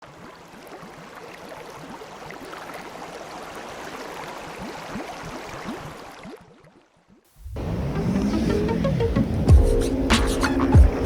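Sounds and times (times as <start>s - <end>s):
water gurgling and lapping: 0.0s - 11.0s
small bubbling plops: 4.2s - 7.2s.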